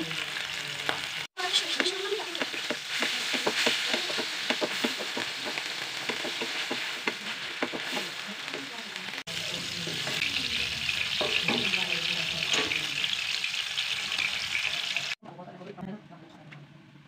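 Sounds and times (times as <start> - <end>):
fish frying in hot oil: 0.0 - 15.2
spatula scraping pan: 1.4 - 8.8.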